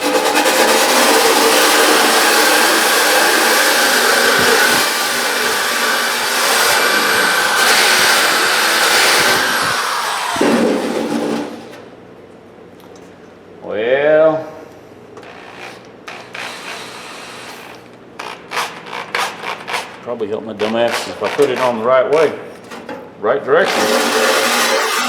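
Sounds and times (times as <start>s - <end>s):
electric drill whining: 0.9s - 10.8s, 15.2s - 17.8s.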